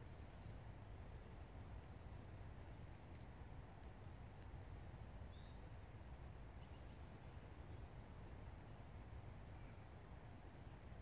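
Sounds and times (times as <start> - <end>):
low forest ambience rumble: 0.0 - 11.0
faint high bird chirps: 4.5 - 11.0.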